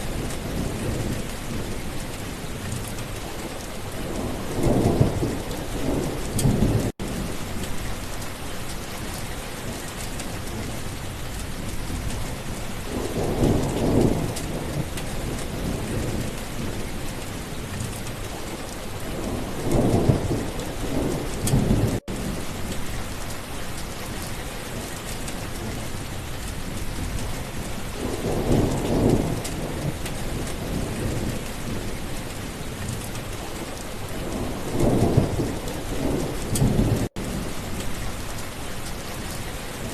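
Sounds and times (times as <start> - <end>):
heavy rain: 0.0 - 39.9
thunder rumbling: 4.0 - 8.2, 11.5 - 23.4, 24.7 - 39.9.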